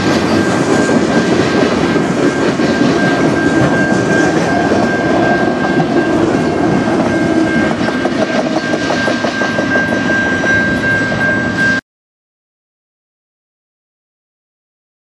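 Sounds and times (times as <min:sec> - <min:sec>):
freight train rolling past: 0:00.0 - 0:11.8
steady high-pitched tone: 0:00.0 - 0:11.8
steel wheels clacking over rail joints: 0:00.0 - 0:11.8.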